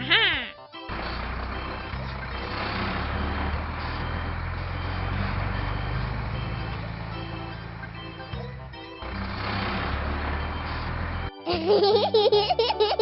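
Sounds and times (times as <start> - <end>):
cartoon construction vehicle engine: 0.0 - 13.0.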